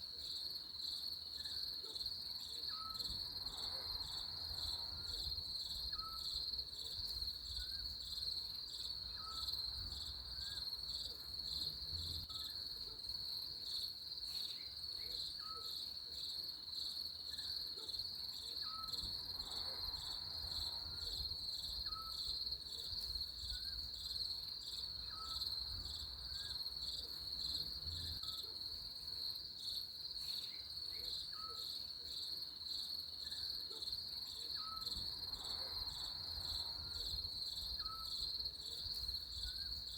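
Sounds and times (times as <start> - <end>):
crickets trilling: 18.6 - 39.9.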